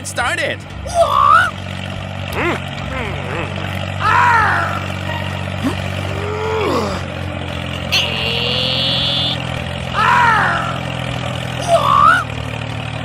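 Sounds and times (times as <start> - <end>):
vehicle engine hum: 0.0 - 13.0
high steady tone: 7.8 - 9.5
short sliding pitched calls: 7.9 - 9.5.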